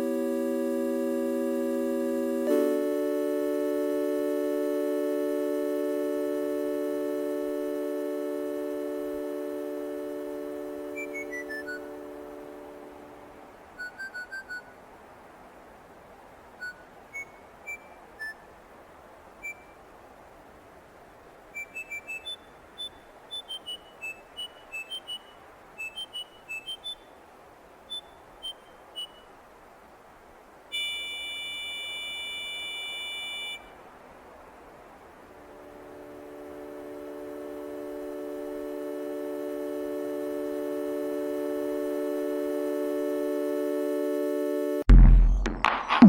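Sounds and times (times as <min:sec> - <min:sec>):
steady electronic tone: 0:00.0 - 0:13.3, 0:35.4 - 0:46.0.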